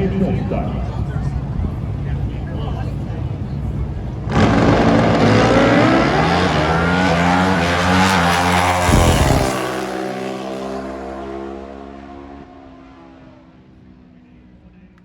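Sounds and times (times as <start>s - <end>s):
motorcycles accelerating hard: 4.1s - 13.7s
short low thump: 8.8s - 9.6s.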